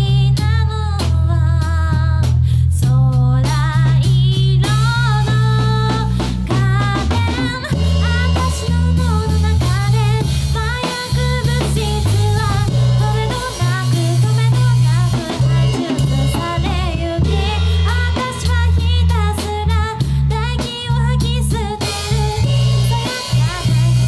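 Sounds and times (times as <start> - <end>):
drum kit beat: 0.0 - 24.0
electric bass: 0.0 - 24.0
person singing: 0.0 - 24.0.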